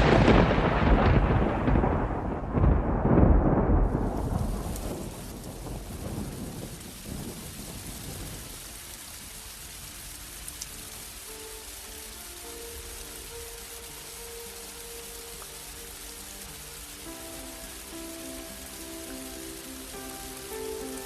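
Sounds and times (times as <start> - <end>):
thunder rumbling: 0.0 - 9.9
steady rain hissing: 0.0 - 21.0.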